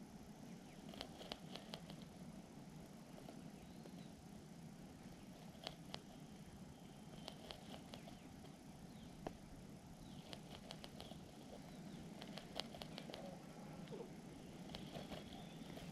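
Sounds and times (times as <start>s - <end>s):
bird tapping and scratching at nest: 0.8s - 2.1s, 5.3s - 6.2s, 7.1s - 8.6s, 10.1s - 13.3s, 14.6s - 15.9s
faint high-pitched bird cheeps: 12.8s - 15.9s.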